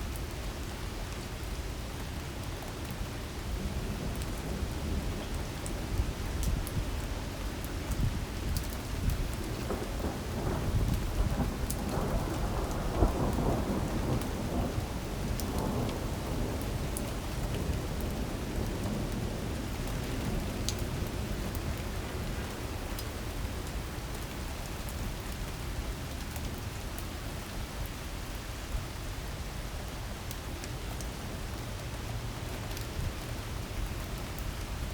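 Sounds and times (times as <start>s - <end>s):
heavy rain hiss: 0.0s - 34.9s.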